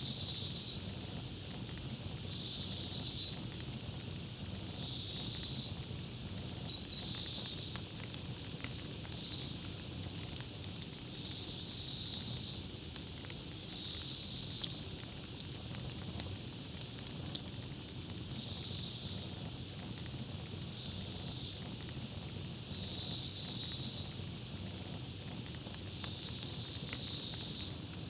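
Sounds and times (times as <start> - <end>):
campfire crackling: 0.0 - 28.0
bird chirps: 27.1 - 27.9.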